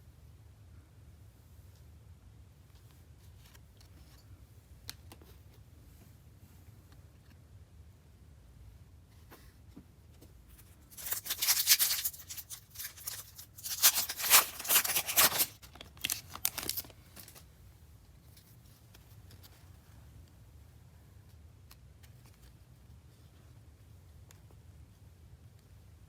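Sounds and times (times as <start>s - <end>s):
wrapper tearing and crinkling: 10.9s - 17.4s.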